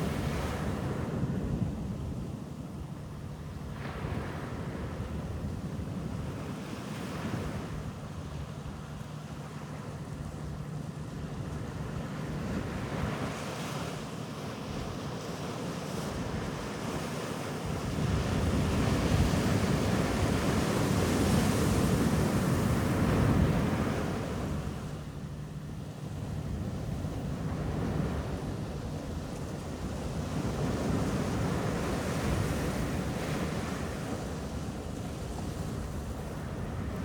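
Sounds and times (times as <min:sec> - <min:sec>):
waves breaking on a beach: 0:11.3 - 0:37.0.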